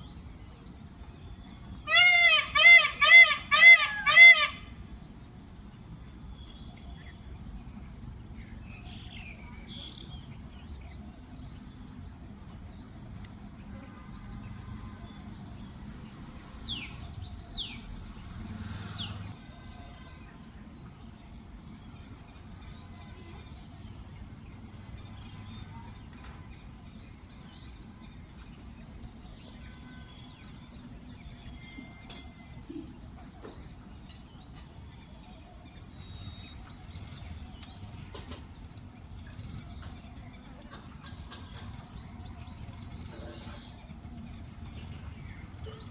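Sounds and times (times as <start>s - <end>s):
small birds chirping: 26.9s - 45.9s.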